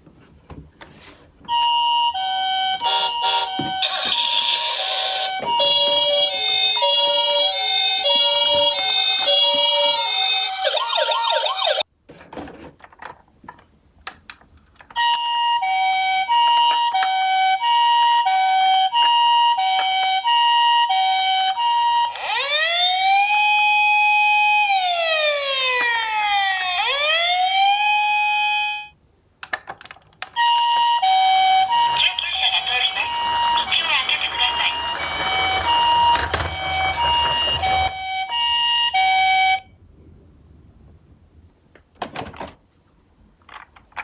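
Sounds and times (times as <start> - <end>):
toy siren two-tone and wail: 1.6 - 11.8, 15.0 - 28.9, 30.4 - 39.7.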